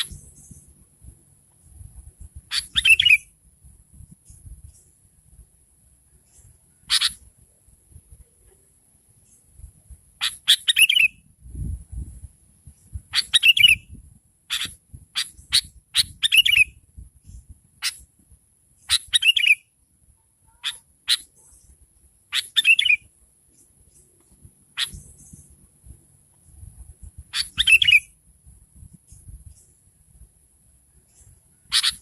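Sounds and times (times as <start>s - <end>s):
bulbul calling: 2.4s - 3.3s, 6.3s - 7.2s, 10.2s - 11.2s, 12.7s - 13.9s, 14.5s - 18.1s, 18.8s - 19.7s, 20.4s - 21.7s, 22.3s - 24.0s, 24.7s - 25.6s, 27.1s - 28.2s, 31.1s - 32.0s
sharp bird chips: 27.3s - 28.1s, 31.1s - 32.0s.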